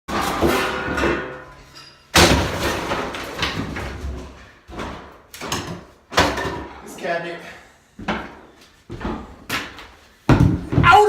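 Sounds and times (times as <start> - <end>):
demolition banging and crashing: 0.1 - 6.8.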